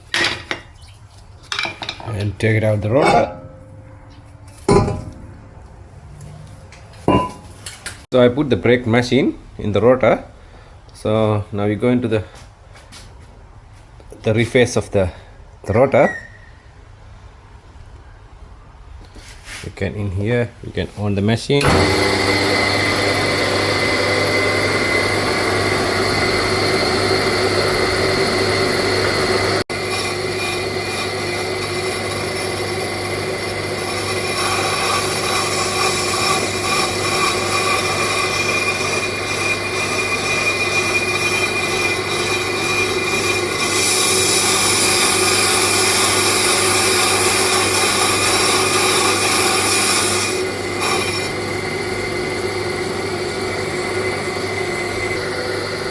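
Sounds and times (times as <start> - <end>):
high ringing cutting tone: 2.8 - 5.4, 7.1 - 7.5
lathe motor hum: 21.6 - 55.9.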